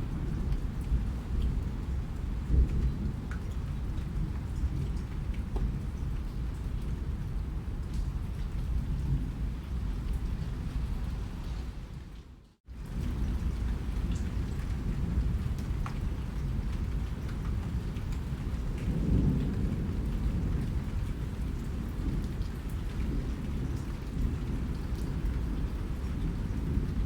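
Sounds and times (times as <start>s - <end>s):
heavy rain: 0.0s - 27.0s
rolling thunder rumble: 12.8s - 27.0s.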